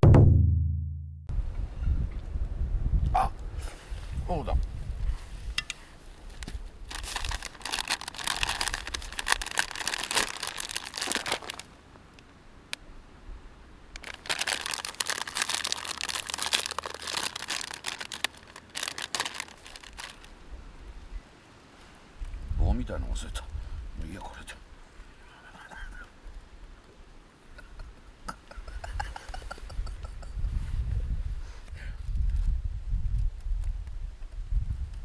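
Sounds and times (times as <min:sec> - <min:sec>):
plastic bag crinkling: 0:06.3 - 0:11.8, 0:14.0 - 0:20.4.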